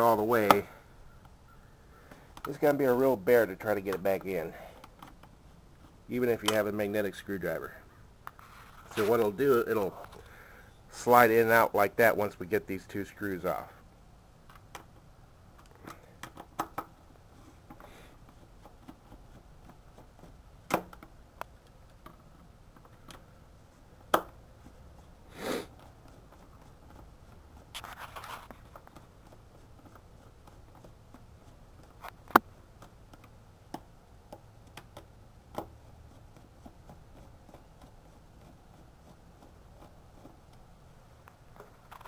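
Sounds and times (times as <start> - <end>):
scraping: 24.6 - 32.4.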